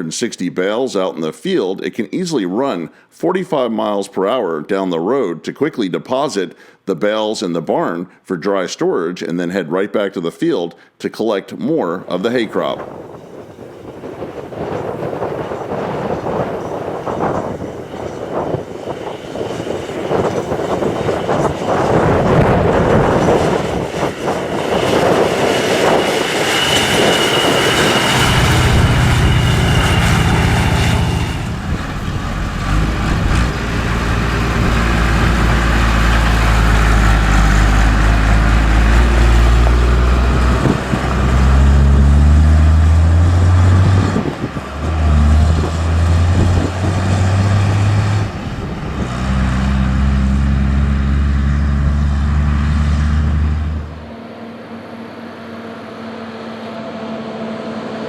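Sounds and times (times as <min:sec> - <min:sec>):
farm machinery engine running: 0:12.9 - 0:58.0.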